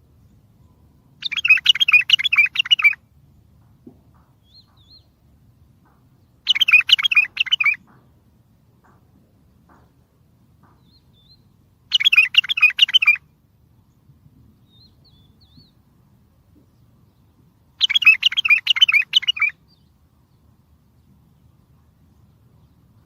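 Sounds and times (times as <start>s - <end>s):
bird warbling whistled song: 1.2s - 3.0s, 6.4s - 7.9s, 10.8s - 13.2s, 17.8s - 19.8s.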